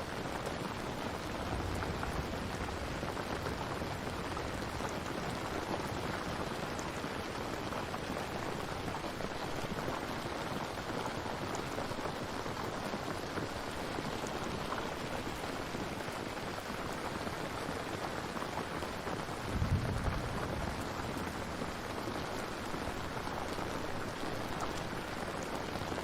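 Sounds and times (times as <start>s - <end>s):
steady rain hissing: 0.0s - 26.0s.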